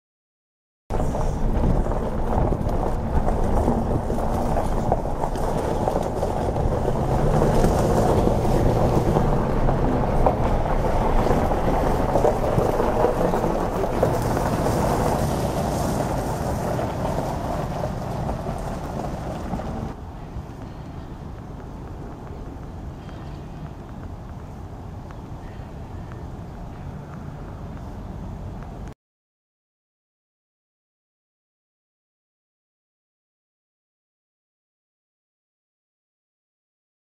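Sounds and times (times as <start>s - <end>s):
diesel locomotives passing: 0.9s - 28.6s.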